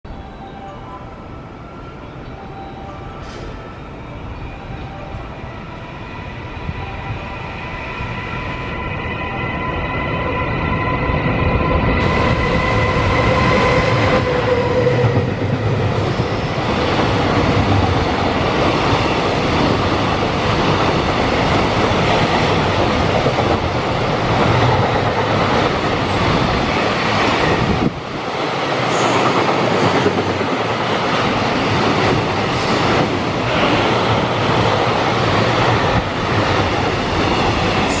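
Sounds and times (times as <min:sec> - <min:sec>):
locomotive whine: 0:00.1 - 0:28.2.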